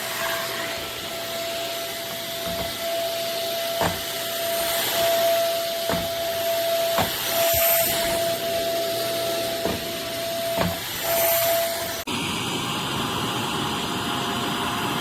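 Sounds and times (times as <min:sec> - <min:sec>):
vacuum cleaner motor running: 0:00.0 - 0:15.0
vacuum bumping knocks: 0:02.0 - 0:08.9, 0:09.5 - 0:10.9.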